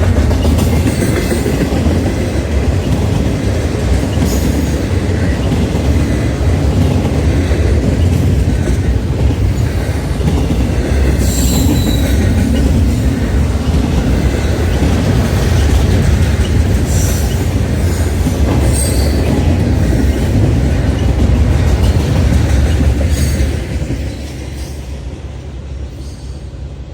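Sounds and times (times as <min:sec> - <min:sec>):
freight train rumbling past: 0:00.0 - 0:26.9
high wheel squeals: 0:11.2 - 0:13.1, 0:18.6 - 0:19.3.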